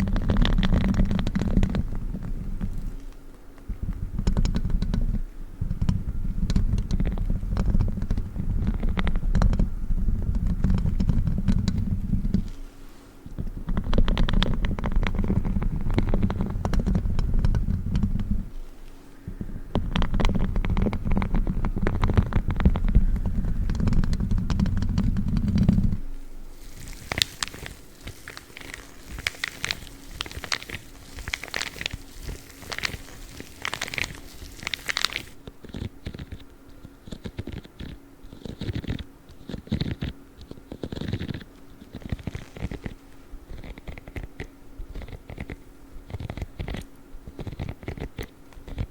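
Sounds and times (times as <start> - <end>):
gloves rubbing on microphone: 19.8 - 46.8.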